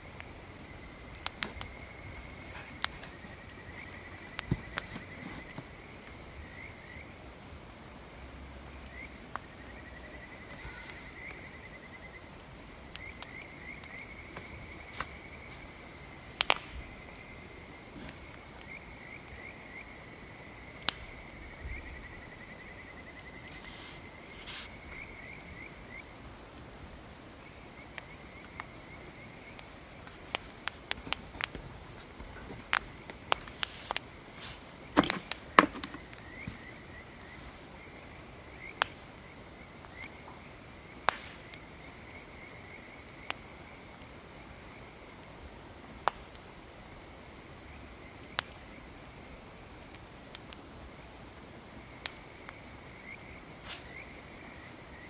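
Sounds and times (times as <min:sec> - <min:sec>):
wood fire crackling and popping: 0:01.1 - 0:04.9, 0:14.9 - 0:17.3, 0:27.9 - 0:43.4.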